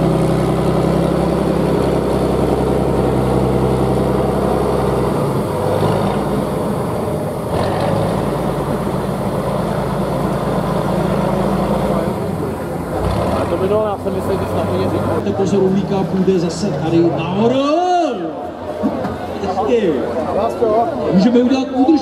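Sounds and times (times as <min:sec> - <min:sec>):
heavy truck engine running: 0:00.0 - 0:17.5.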